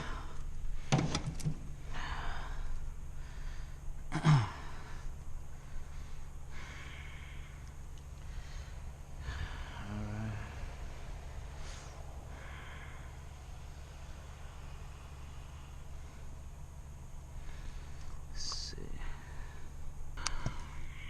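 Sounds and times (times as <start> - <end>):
person breathing heavily: 0.0 - 1.1, 1.7 - 21.0
steady low hum: 0.0 - 21.0
sharp clicks: 20.2 - 20.6.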